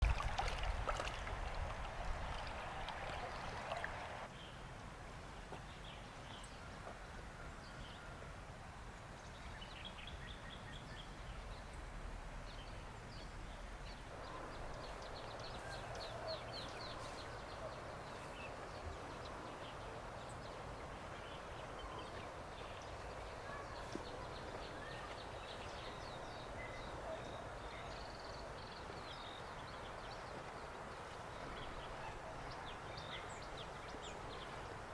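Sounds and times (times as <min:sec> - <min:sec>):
birds chirping: 0:00.0 - 0:04.3, 0:14.1 - 0:34.9
background hiss: 0:00.1 - 0:04.3.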